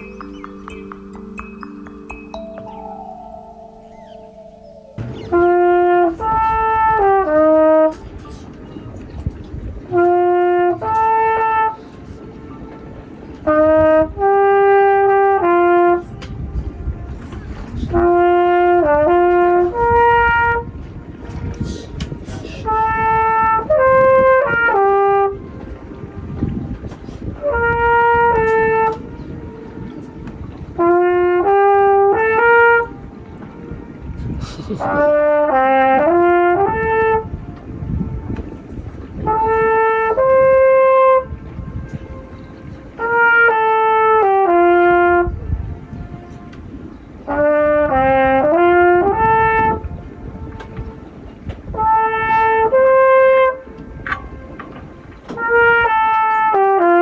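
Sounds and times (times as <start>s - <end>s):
trumpet echo: 0.0s - 7.8s, 51.8s - 57.0s
trumpet playing held notes: 0.0s - 7.9s, 27.4s - 34.2s, 34.9s - 38.6s, 39.2s - 45.3s, 51.8s - 57.0s.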